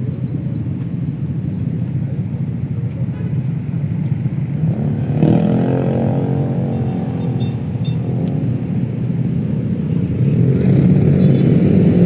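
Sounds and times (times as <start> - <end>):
street traffic rumble: 0.0 - 12.0
vehicle engine passing close: 4.7 - 12.0.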